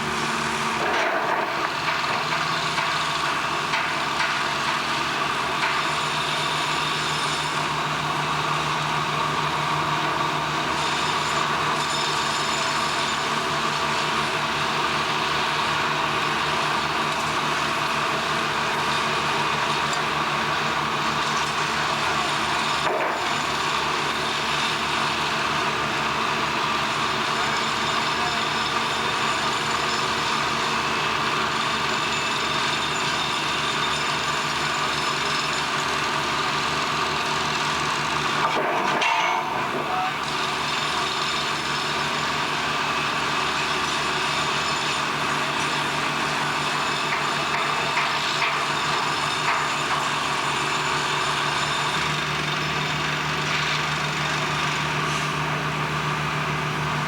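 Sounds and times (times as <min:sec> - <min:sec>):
machinery running: 0:00.0 - 0:57.0.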